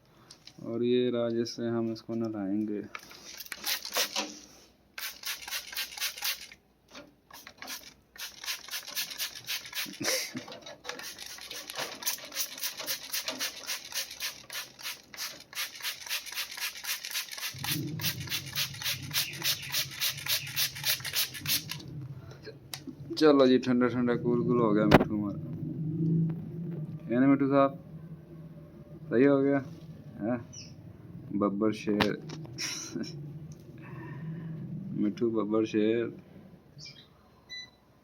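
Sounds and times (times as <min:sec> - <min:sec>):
spray bottle squirting water: 0:03.0 - 0:04.4, 0:05.0 - 0:06.6, 0:07.3 - 0:21.9
low steady hum: 0:17.6 - 0:36.8.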